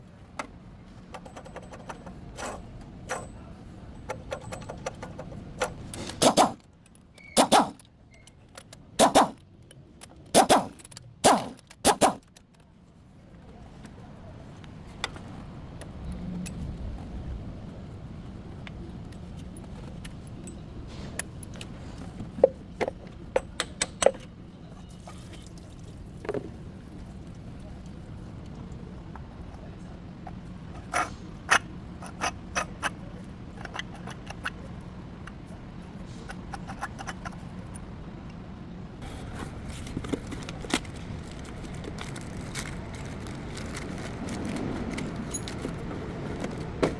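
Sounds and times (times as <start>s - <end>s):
metallic jangling and clanking: 1.2s - 3.4s, 4.1s - 6.6s, 43.6s - 46.6s
sharp clicks: 7.3s - 7.9s, 8.7s - 9.4s, 10.4s - 12.4s.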